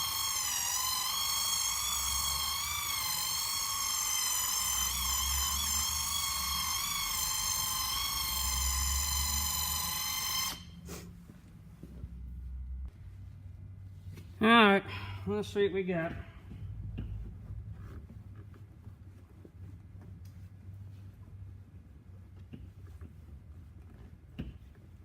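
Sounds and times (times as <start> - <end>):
power buffer whining: 0.0 - 11.0.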